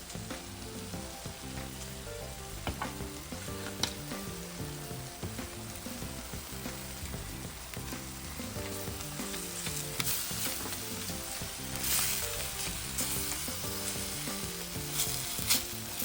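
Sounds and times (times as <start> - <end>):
background music with held notes: 0.0 - 16.0
meat sizzling in a pan: 0.0 - 16.0
scraping and stirring in pan: 6.6 - 16.0.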